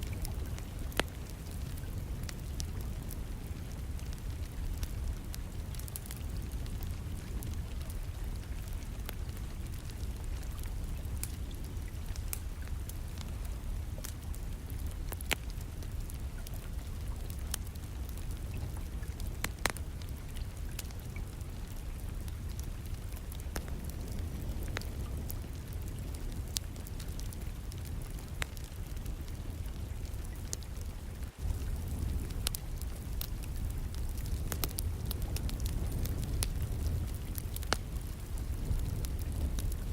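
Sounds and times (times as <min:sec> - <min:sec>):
wood fire crackling: 0:00.0 - 0:39.9
rain hissing: 0:31.3 - 0:39.9.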